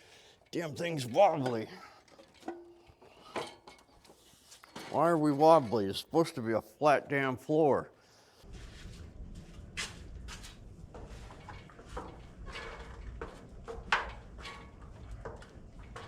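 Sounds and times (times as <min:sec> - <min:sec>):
objects knocking and scraping: 0:00.5 - 0:05.8, 0:08.4 - 0:16.0
steady low rumble: 0:08.5 - 0:12.6.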